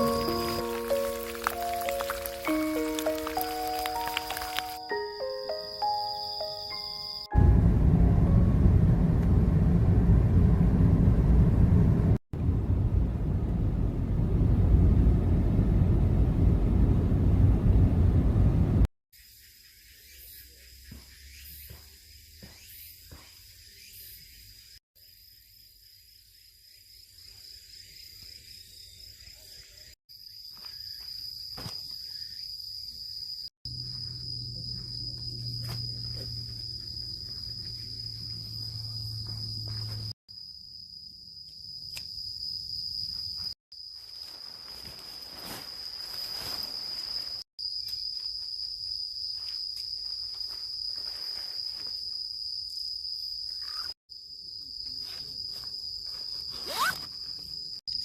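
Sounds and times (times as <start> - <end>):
insects trilling: 0.0 - 7.3, 19.2 - 58.0
low hum: 7.4 - 18.9.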